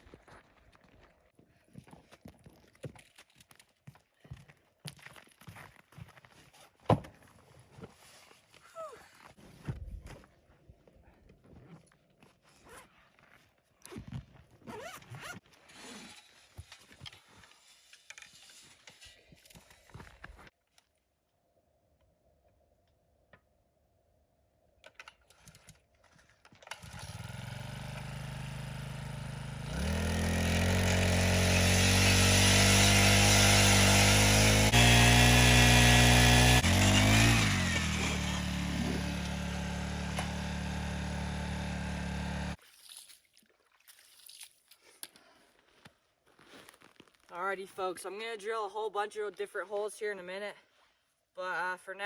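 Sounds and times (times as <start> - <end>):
ice auger engine: 25.3 - 42.6.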